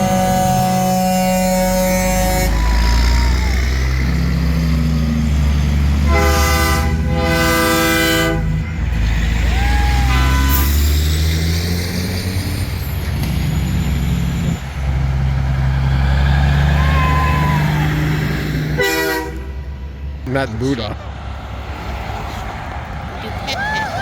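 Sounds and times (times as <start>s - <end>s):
truck air horn blasts: 0.0s - 4.4s, 6.0s - 8.8s, 10.0s - 10.9s, 18.6s - 20.0s
diesel truck engines droning: 0.0s - 24.0s.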